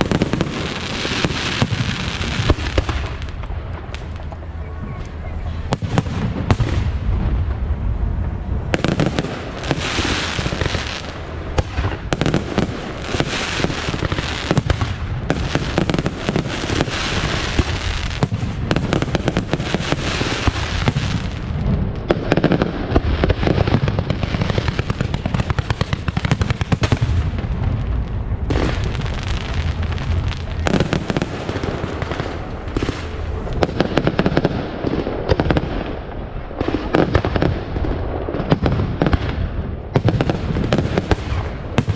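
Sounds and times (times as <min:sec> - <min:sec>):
steady low rumble: 0:02.6 - 0:09.8, 0:20.5 - 0:36.8.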